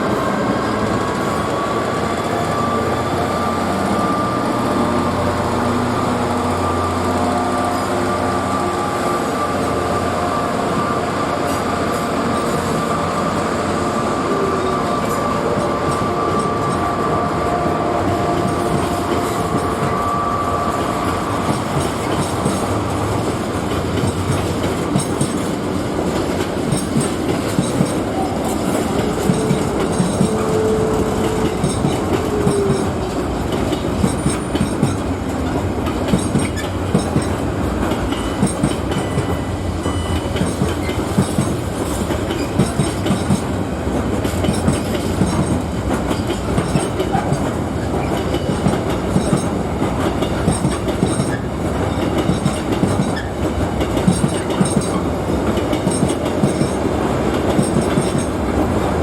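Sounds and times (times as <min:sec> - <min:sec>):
train wheels rumbling on track: 0:00.0 - 0:59.0
wheels clicking over rail joints: 0:23.6 - 0:58.4.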